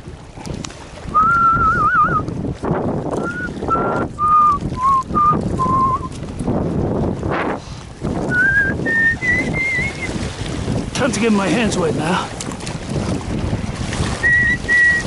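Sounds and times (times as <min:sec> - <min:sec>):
wind buffeting the microphone: 0:00.0 - 0:15.0
person whistling a tune: 0:01.1 - 0:02.2, 0:03.2 - 0:06.1, 0:08.3 - 0:10.1, 0:14.2 - 0:15.0.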